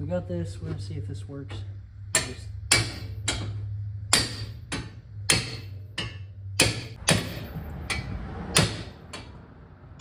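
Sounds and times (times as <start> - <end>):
hammer striking metal: 1.5 - 9.4.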